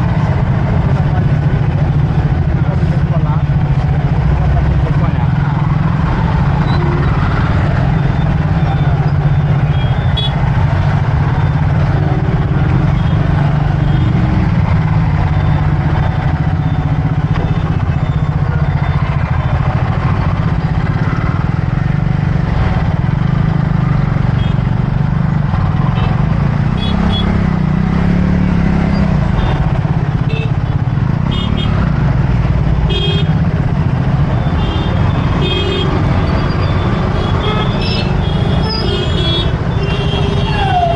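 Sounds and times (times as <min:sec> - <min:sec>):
motorcycle engine rumbling: 0:00.0 - 0:40.9
vehicle horn toots: 0:32.9 - 0:33.3, 0:37.2 - 0:40.7.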